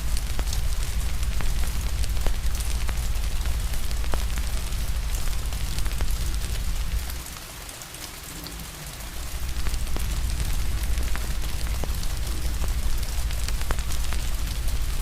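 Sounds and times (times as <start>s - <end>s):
wood fire crackling: 0.0s - 7.5s, 9.1s - 15.0s
rain hiss: 0.0s - 15.0s
low rumble: 9.3s - 15.0s.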